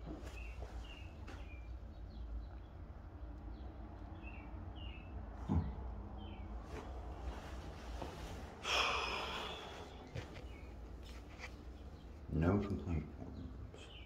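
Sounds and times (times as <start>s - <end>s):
small songbird chirping: 0.2s - 5.2s, 9.9s - 14.0s.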